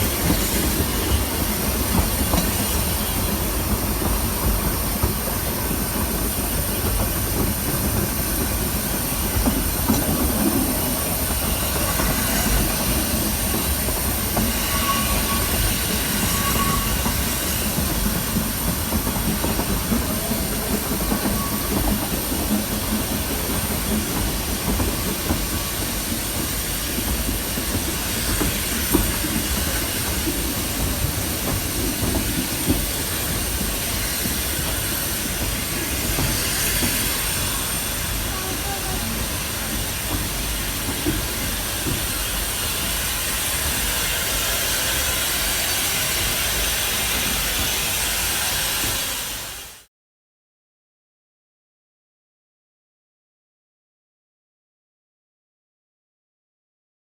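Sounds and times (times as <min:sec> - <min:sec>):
train wheels rumbling on rails: 0:00.0 - 0:49.9
faint wheel squeal: 0:14.5 - 0:17.2.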